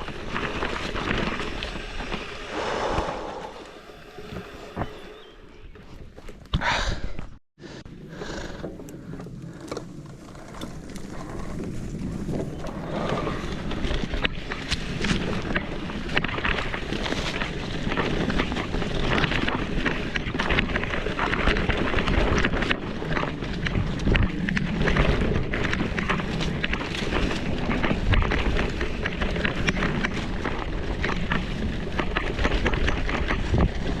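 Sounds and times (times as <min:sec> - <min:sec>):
bike tyres crunching over dirt: 0:00.0 - 0:06.6, 0:08.2 - 0:34.0
wind on microphone: 0:00.0 - 0:07.2.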